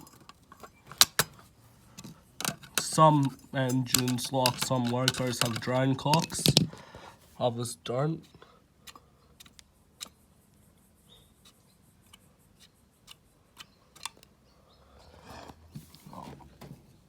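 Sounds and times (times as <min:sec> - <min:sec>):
metallic clicks of pliers: 0:02.0 - 0:06.7, 0:08.8 - 0:10.2, 0:12.1 - 0:14.3
soft rustle: 0:15.0 - 0:17.0.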